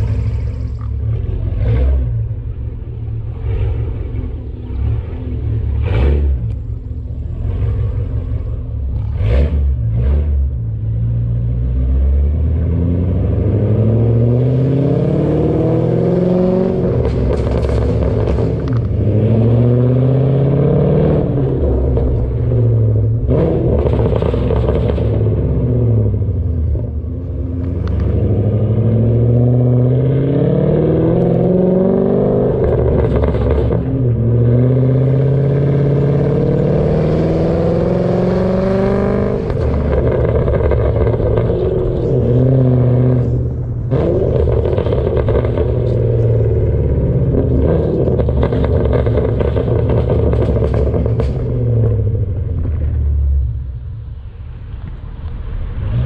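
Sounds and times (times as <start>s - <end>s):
car engine idling: 0.0s - 9.3s
car accelerating through gears: 11.4s - 26.9s, 27.6s - 52.3s.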